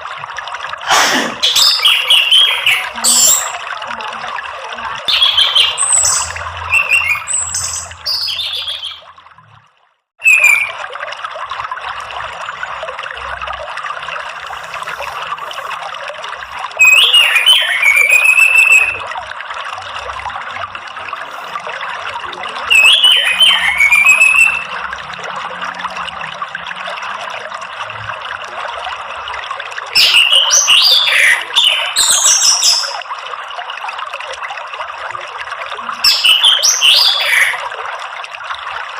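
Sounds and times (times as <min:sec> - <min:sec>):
running water: 0:00.0 - 0:38.9
thrush song with whistled notes: 0:05.6 - 0:09.0, 0:10.2 - 0:10.8, 0:16.8 - 0:19.0, 0:22.7 - 0:24.6.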